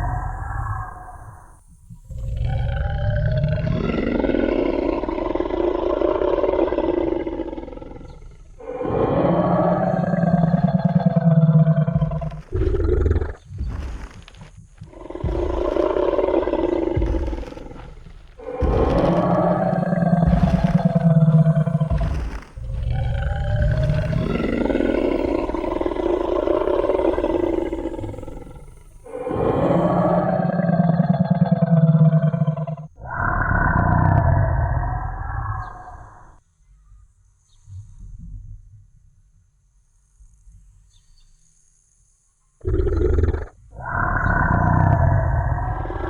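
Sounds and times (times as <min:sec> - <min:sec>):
low rumbling growl: 0:02.1 - 0:36.3, 0:43.7 - 0:46.0
deep dinosaur roars: 0:02.1 - 0:36.4, 0:42.7 - 0:46.0
low stomping thuds: 0:10.4 - 0:29.7.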